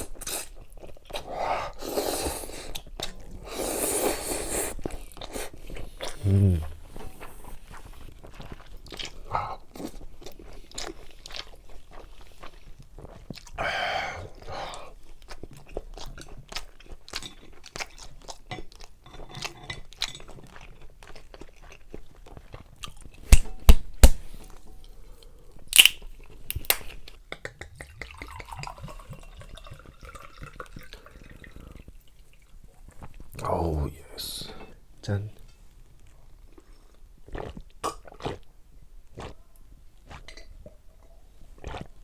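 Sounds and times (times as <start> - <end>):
chewing and crunching food: 0.0 - 33.3, 35.7 - 42.0.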